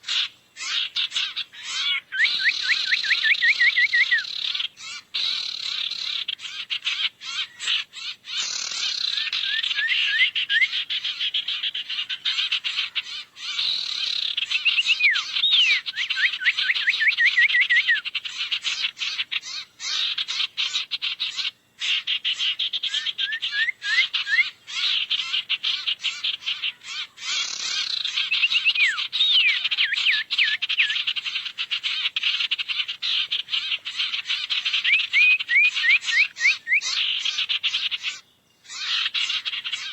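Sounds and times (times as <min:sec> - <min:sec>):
quick upswept bird chirps: 0:00.0 - 0:39.9
small birds chattering: 0:00.0 - 0:39.9.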